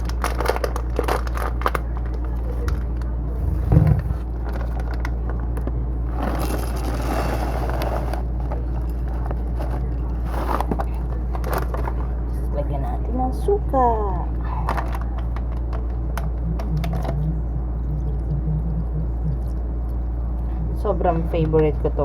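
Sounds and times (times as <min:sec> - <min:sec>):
steady low hum: 0:00.0 - 0:22.0
thump: 0:03.5 - 0:04.2.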